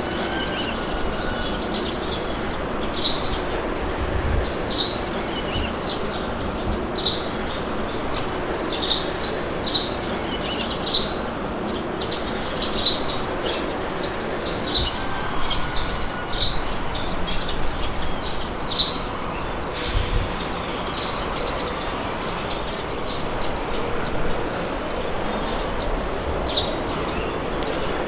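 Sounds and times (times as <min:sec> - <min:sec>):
birds chirping: 0:00.0 - 0:28.0
steady wind blowing: 0:00.0 - 0:28.0.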